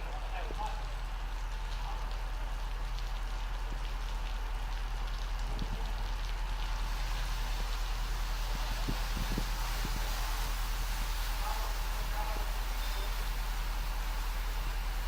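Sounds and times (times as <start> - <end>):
constant low hum: 0.0 - 15.0
water pattering on metal tank: 0.0 - 15.0
truck wash brushes and spray: 5.6 - 15.0.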